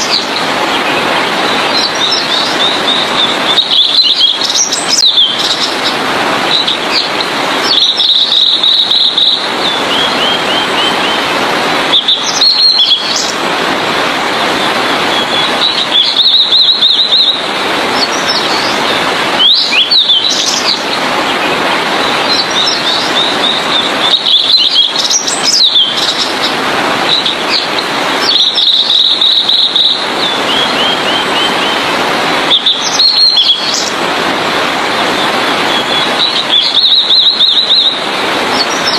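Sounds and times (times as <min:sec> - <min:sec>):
bird whistles and trills: 0:01.6 - 0:11.2, 0:11.9 - 0:13.3, 0:15.1 - 0:20.9, 0:22.3 - 0:26.3, 0:27.1 - 0:31.8, 0:32.5 - 0:33.9, 0:35.2 - 0:38.9.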